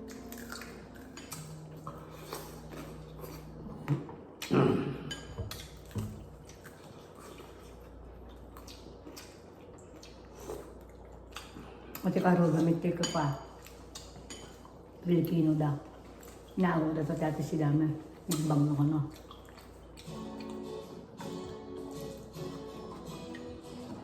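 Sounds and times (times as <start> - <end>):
cutlery and dishes clinking: 0.2 - 1.6, 4.8 - 6.2.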